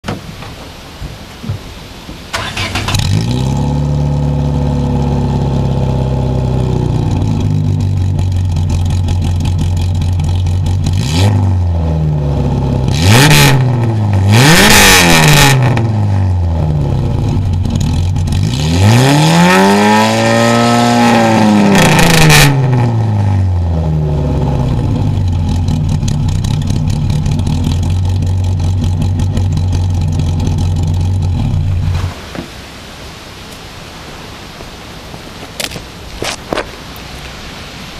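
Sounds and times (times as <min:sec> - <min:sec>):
car engine idling: 0:02.3 - 0:11.1, 0:16.3 - 0:18.6, 0:23.4 - 0:34.6
engine revving: 0:02.4 - 0:32.2.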